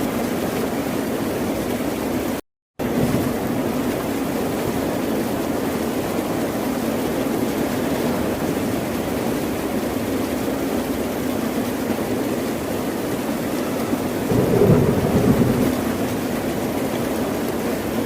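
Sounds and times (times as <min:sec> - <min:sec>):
ocean surf breaking waves: 0:14.3 - 0:17.3.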